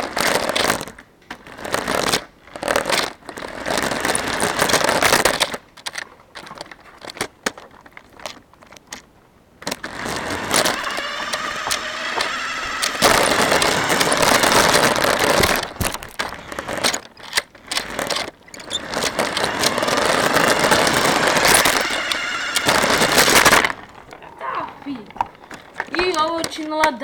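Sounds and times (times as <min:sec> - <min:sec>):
wheels rattling over ground: 0:00.0 - 0:27.0
toy car motor whining: 0:03.4 - 0:05.5, 0:09.8 - 0:17.1, 0:17.7 - 0:24.1.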